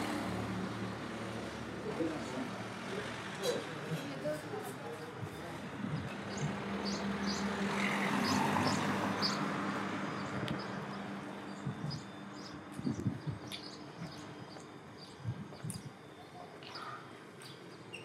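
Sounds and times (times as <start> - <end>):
street noise: 0.0 - 18.0
small birds chirping: 4.9 - 18.0
vehicle passing: 5.6 - 13.4.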